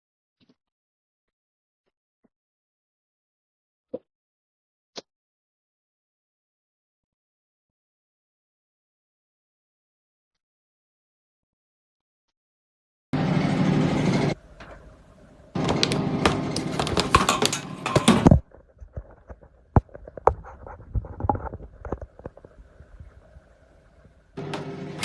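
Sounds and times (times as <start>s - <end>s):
stick vacuum cleaner motor: 15.6s - 18.4s, 24.4s - 25.0s
rapid clatter of clicks: 15.6s - 22.5s.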